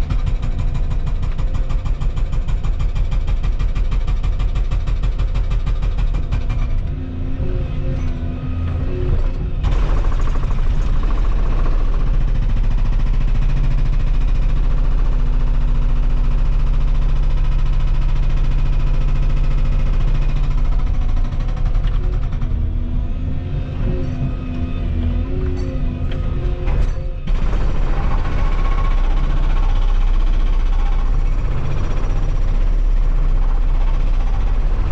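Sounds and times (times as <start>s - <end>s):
excavator diesel engine under load: 6.6s - 12.8s, 19.2s - 34.9s.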